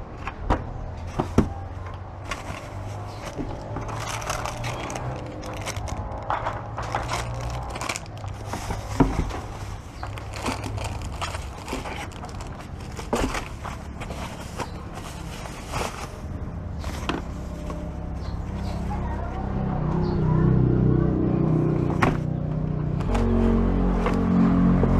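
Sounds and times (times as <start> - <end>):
packaging crinkling and rustling: 1.1 - 18.9.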